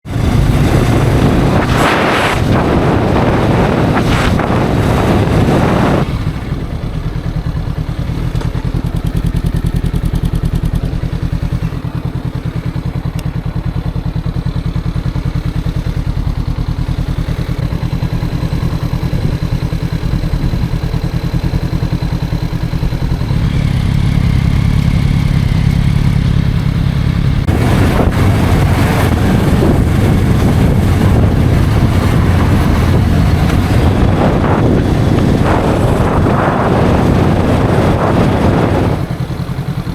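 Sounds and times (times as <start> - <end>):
wind rush over microphone: 0.0 - 7.1, 27.4 - 39.9
motorcycle engine running: 0.0 - 39.9.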